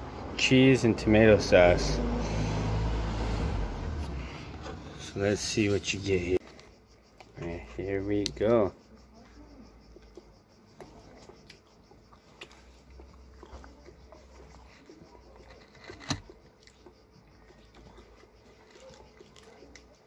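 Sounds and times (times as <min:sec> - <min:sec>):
faint chewing of pizza: 0:09.2 - 0:20.0.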